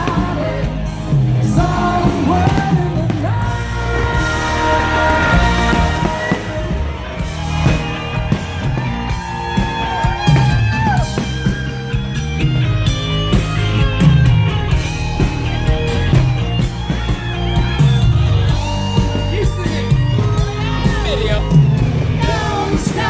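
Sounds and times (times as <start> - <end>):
bass guitar: 0.0 - 23.0
drums: 0.0 - 23.0
lead electric guitar: 0.0 - 23.0.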